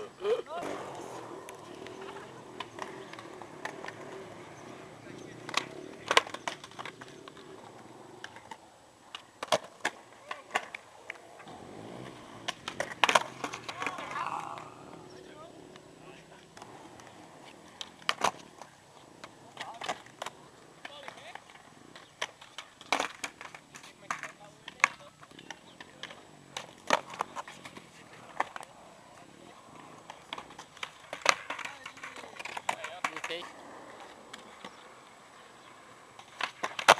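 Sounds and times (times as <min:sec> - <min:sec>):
skateboard clacking on hard ground: 0:00.0 - 0:36.9.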